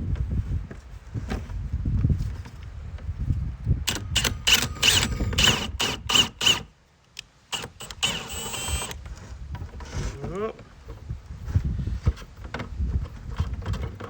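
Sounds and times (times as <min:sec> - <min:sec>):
power tool whining: 0:03.9 - 0:06.7, 0:07.5 - 0:09.1.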